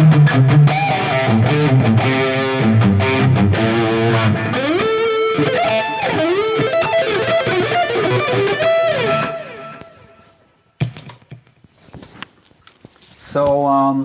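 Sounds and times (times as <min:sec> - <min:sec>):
electric guitar: 0:00.0 - 0:11.6.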